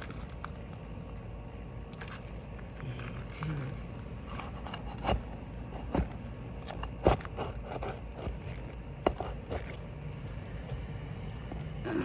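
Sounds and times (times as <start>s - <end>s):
tool scraping under shingle: 4.3s - 9.9s.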